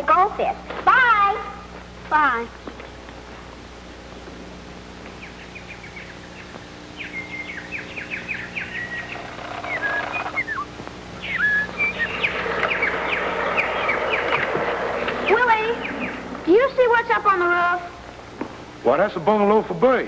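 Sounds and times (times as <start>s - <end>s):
faint steady hum: 0.0s - 20.0s
small bird chirping: 5.1s - 16.7s.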